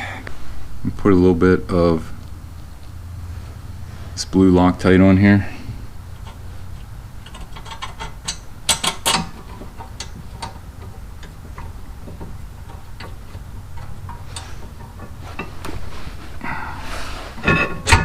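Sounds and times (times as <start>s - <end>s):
low steady hum: 0.0s - 18.0s
metallic clicks of hand tools: 7.2s - 10.6s.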